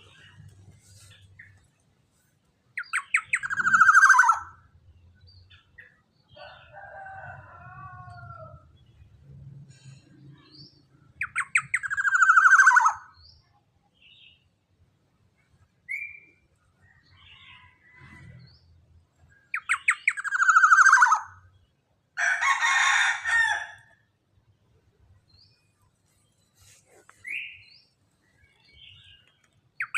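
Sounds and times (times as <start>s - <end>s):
bird harsh calls: 2.8s - 4.6s, 11.2s - 13.2s, 19.4s - 21.5s
bird rasping call: 3.0s - 4.5s.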